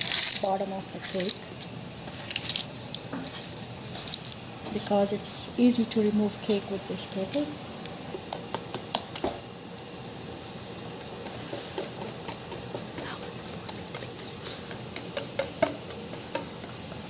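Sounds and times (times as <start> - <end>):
parchment paper crinkling: 0.0 - 4.4.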